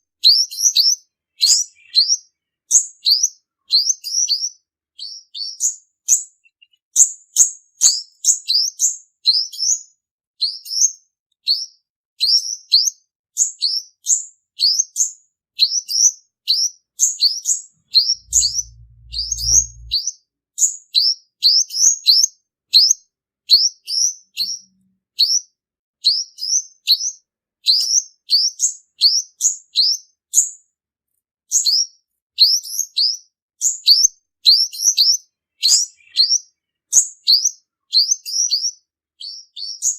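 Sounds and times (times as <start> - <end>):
sunbird singing high chirps: 0.2 - 9.8, 14.6 - 20.1, 32.4 - 39.9.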